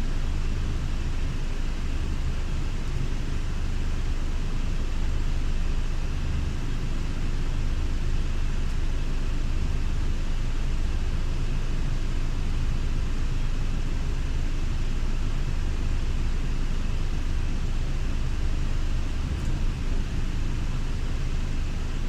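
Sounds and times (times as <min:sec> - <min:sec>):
diesel engine rumbling: 0:17.9 - 0:22.0.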